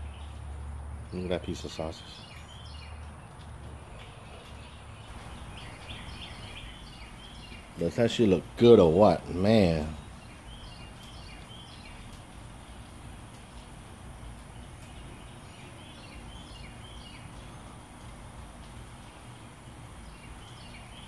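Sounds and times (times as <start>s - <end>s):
bird chirping: 0.0s - 12.8s, 14.2s - 17.8s, 19.0s - 21.0s
low background rumble: 2.6s - 19.1s.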